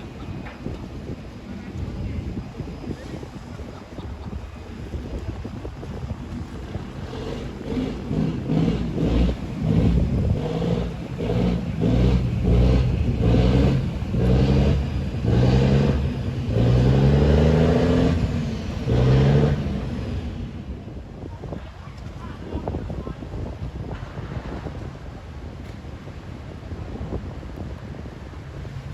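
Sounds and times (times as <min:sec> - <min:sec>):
diesel engine revving: 0:05.8 - 0:21.0.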